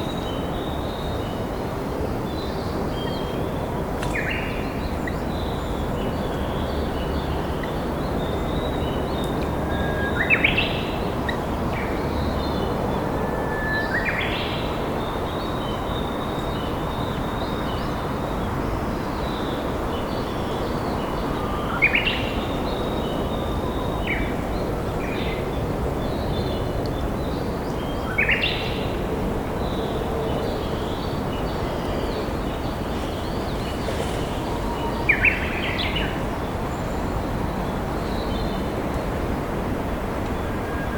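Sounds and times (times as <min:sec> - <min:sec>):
river flowing: 0:30.6 - 0:40.3.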